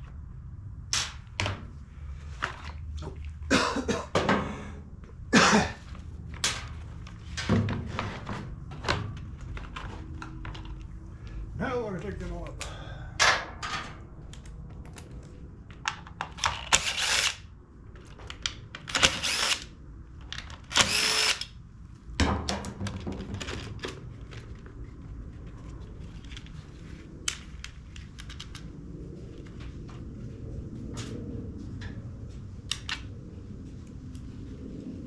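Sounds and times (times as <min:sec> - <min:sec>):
cordless drill bursts: 0:16.7 - 0:17.4, 0:18.9 - 0:19.7, 0:20.7 - 0:21.5
tools clicking and knocking: 0:27.3 - 0:28.6.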